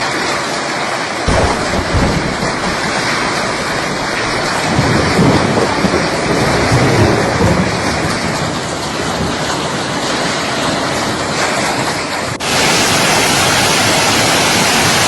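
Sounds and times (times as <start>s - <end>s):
heavy rain pouring: 0.0s - 15.0s
rumble of thunder: 1.3s - 12.0s.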